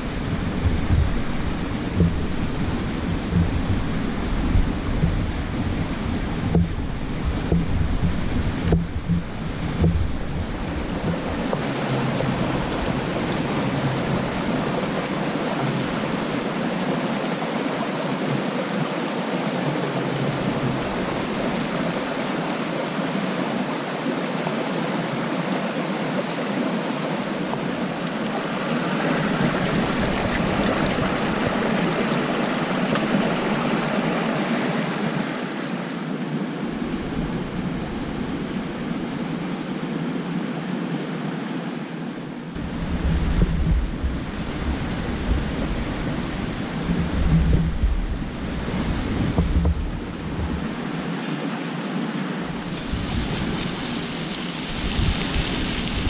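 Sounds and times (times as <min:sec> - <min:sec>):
wind buffeting microphone: 0:00.0 - 0:17.2, 0:27.3 - 0:35.3, 0:36.6 - 0:40.0, 0:42.5 - 0:51.1, 0:52.4 - 0:56.0
lake waves: 0:00.0 - 0:56.0
wind: 0:00.0 - 0:56.0.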